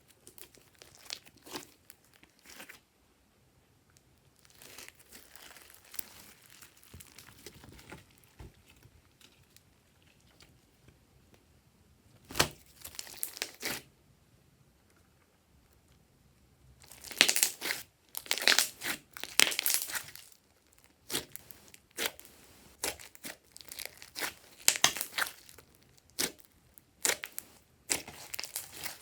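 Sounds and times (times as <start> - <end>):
slime crinkling and popping: 0.2 - 2.8, 4.3 - 9.7, 12.3 - 13.9, 16.8 - 29.0.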